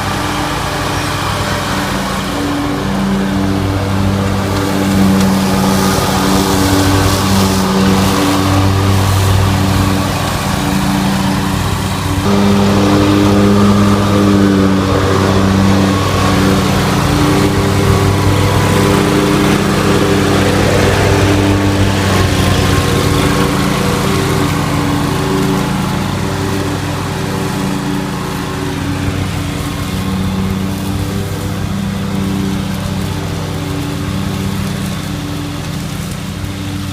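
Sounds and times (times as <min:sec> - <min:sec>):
riding lawn mower engine running: 0:00.0 - 0:36.9.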